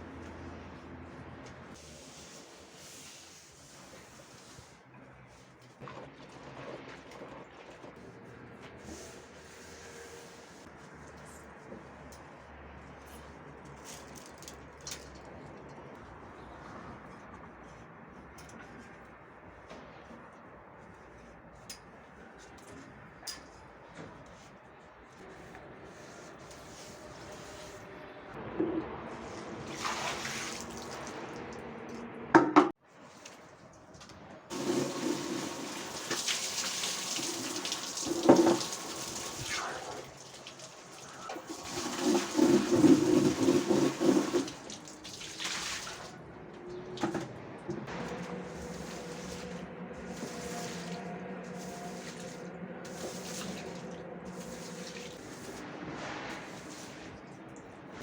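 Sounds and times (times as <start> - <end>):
water running and splashing: 29.7 - 31.4, 34.5 - 46.2, 48.1 - 55.6.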